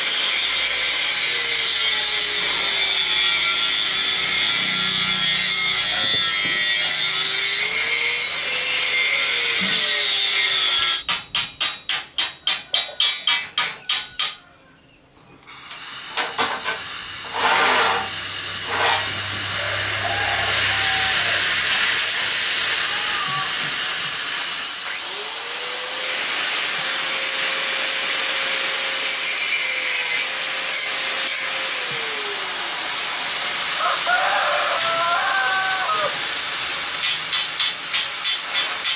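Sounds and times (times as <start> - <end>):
cutting torch hissing: 15.6 - 29.2, 30.0 - 38.9.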